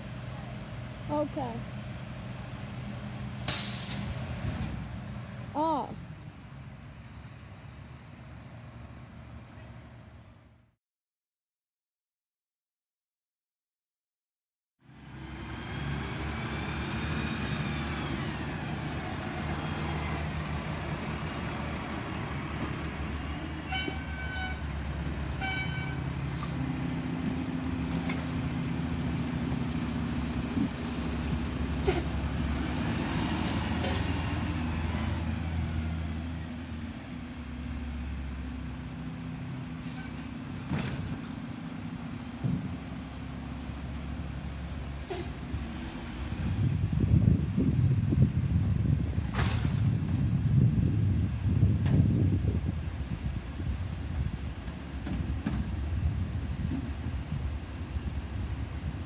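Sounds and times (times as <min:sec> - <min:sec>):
garbage truck engine hum: 0:14.9 - 0:59.0.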